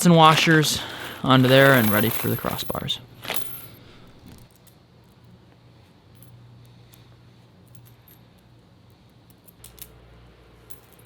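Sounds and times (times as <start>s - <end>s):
metal nuts and washers clinking: 0.0s - 4.8s, 10.6s - 11.0s.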